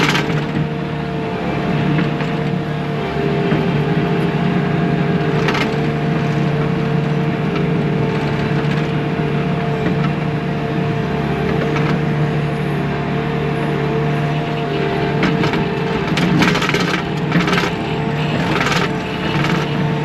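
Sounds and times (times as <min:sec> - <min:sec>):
diesel engine running: 0:00.0 - 0:20.0
steady mechanical whine: 0:00.0 - 0:20.0.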